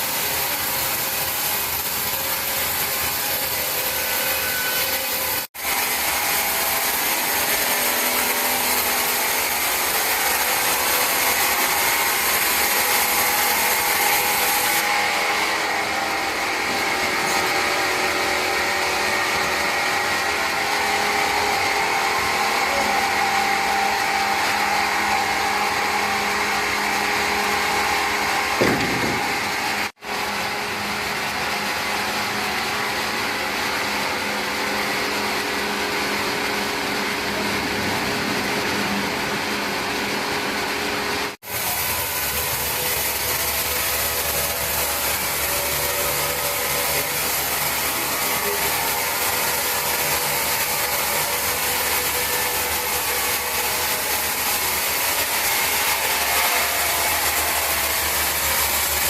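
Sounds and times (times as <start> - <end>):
sawmill machinery running: 0.0 - 59.0
single knock: 28.6 - 29.3.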